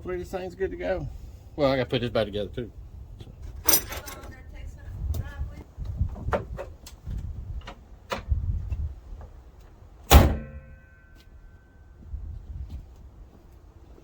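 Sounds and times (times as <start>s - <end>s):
wind rumble on microphone: 0.8s - 9.9s, 11.9s - 14.0s
metal parts clinking: 3.4s - 4.4s
vehicle body panel slamming: 10.1s - 10.6s.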